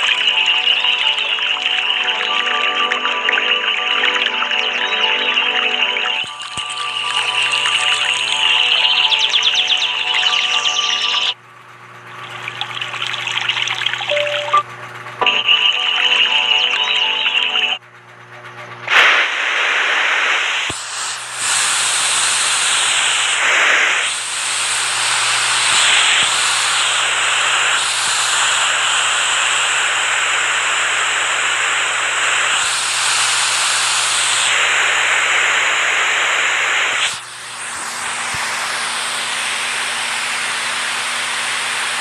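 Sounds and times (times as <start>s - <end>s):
rushing water: 12.2s - 14.5s.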